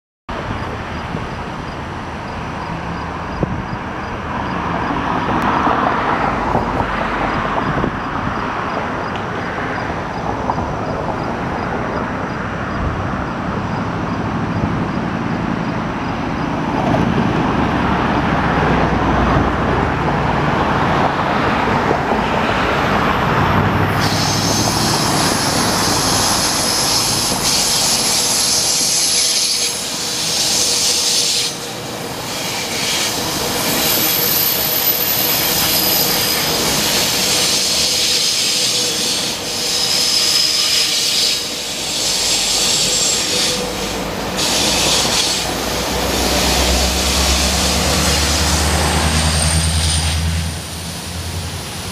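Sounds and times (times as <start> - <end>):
train approaching: 0.3 - 51.9
wheels hissing on rail: 21.0 - 51.9.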